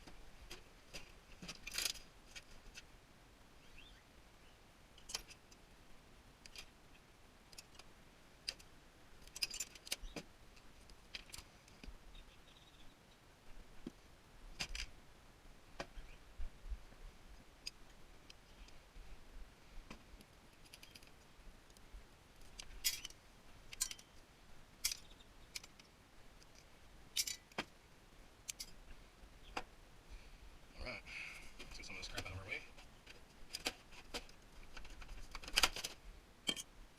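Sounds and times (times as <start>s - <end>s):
metallic clicks of hand tools: 27.2s - 27.6s.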